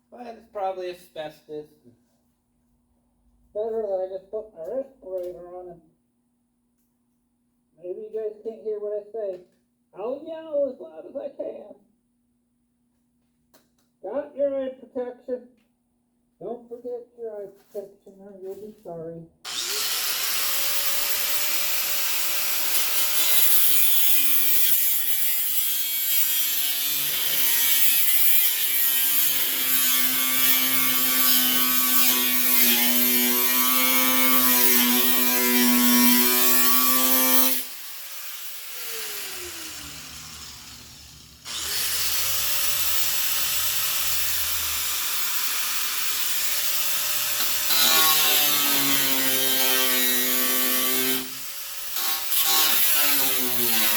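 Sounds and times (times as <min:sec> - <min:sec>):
power tool cutting sheet metal: 0:19.5 - 0:53.9.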